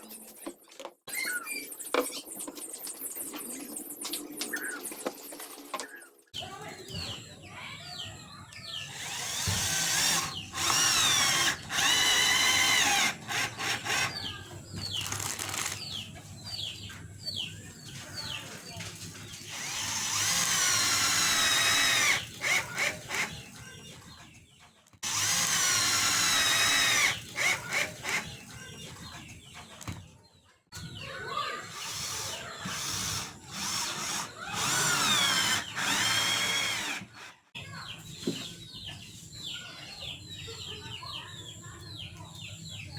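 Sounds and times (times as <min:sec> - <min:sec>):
power drill whining: 0:08.9 - 0:14.2, 0:19.4 - 0:23.4, 0:25.0 - 0:28.4, 0:31.7 - 0:37.3.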